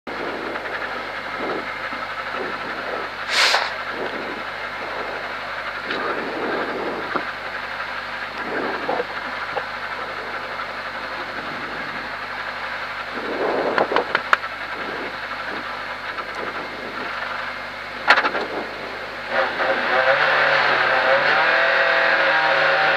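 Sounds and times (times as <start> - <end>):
car engine idling: 0.1 - 22.9
short hiss: 3.3 - 3.8.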